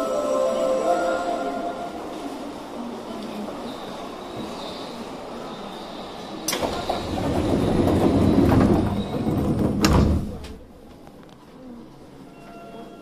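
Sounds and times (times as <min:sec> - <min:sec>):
commuter train rumble: 0:00.0 - 0:13.0
train doors sliding shut: 0:02.0 - 0:10.7.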